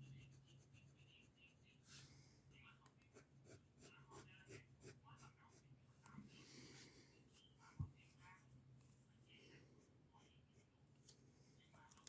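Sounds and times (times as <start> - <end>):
pencil scratching on paper: 0.0 - 5.7, 9.8 - 11.2.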